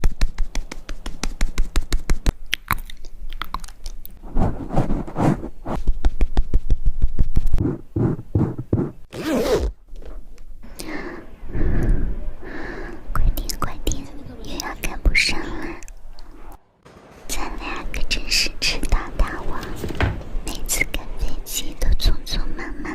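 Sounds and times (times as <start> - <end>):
scratchy noises: 4.2 - 9.7.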